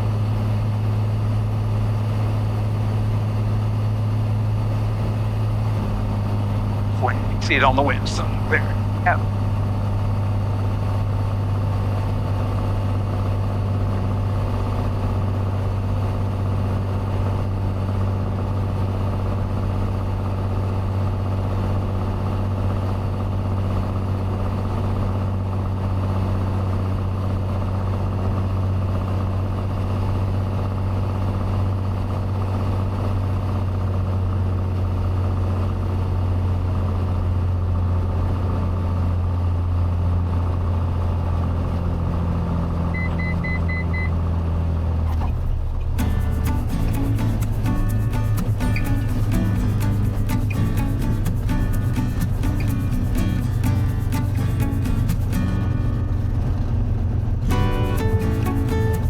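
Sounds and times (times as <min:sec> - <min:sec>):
aircraft engine and propeller droning: 0:00.0 - 0:32.4, 0:44.8 - 0:59.0.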